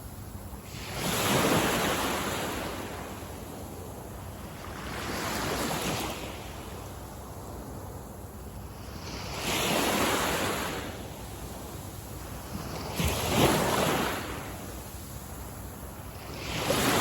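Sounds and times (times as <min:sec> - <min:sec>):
hiss of surf: 0:00.0 - 0:17.0
sea waves breaking on beach: 0:12.4 - 0:15.0, 0:16.2 - 0:17.0.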